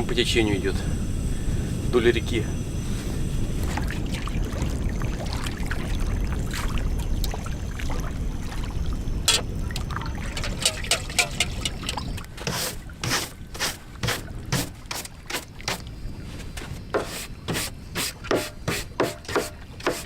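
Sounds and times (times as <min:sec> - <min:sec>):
short noisy bursts: 0:00.0 - 0:03.7, 0:12.5 - 0:15.8
wind buffeting microphone: 0:00.0 - 0:20.0
light splashes and clicks: 0:09.3 - 0:12.4.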